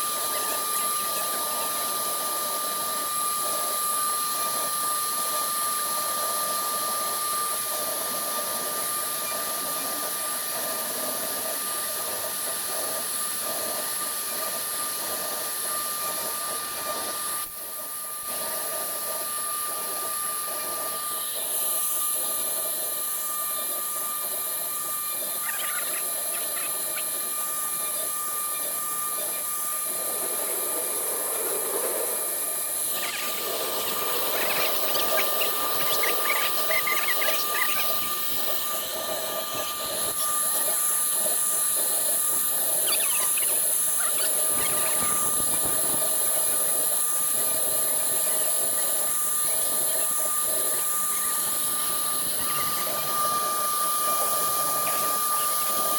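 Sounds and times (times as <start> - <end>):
router bit cutting wood: 0.0 - 55.9
router spindle whine: 0.0 - 55.9.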